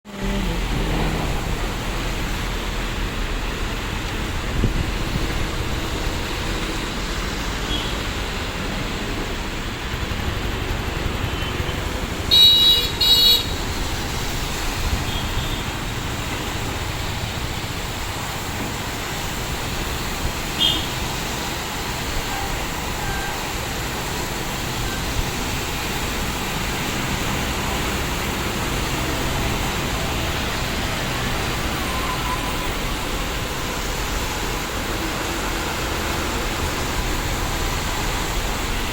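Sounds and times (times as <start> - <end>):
heavy rain falling: 0.0 - 38.9
vehicle horn honking: 12.3 - 13.6, 20.6 - 21.0.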